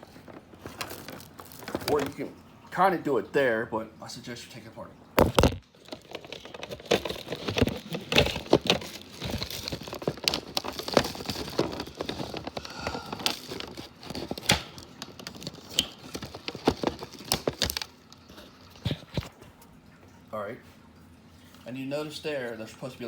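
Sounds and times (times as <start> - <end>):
plastic parts clicking and knocking: 0.0 - 2.3, 5.2 - 19.3.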